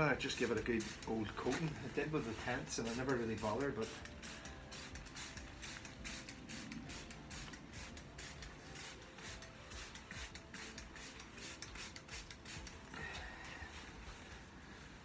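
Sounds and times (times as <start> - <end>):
spray bottle hissing sprays: 0.0 - 14.8.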